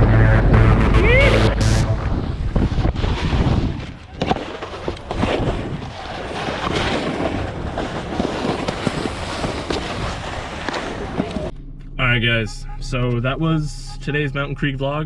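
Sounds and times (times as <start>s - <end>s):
wind on microphone: 1.9s - 11.5s
snowboard scraping over snow: 6.2s - 11.5s.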